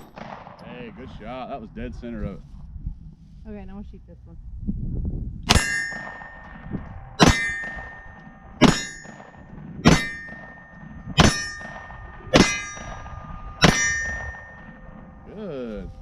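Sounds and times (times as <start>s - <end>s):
pistol shots: 0.0s - 0.7s, 5.5s - 15.0s
steel target clanging: 5.5s - 15.4s.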